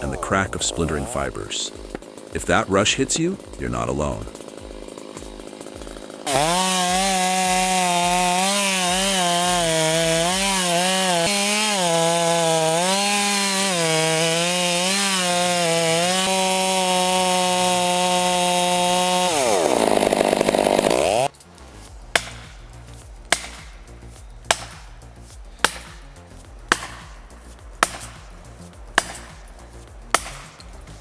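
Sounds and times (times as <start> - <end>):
chainsaw running: 0.0 - 31.0
sharp knock: 22.1 - 22.7, 23.3 - 23.9, 24.5 - 28.4, 29.0 - 30.8.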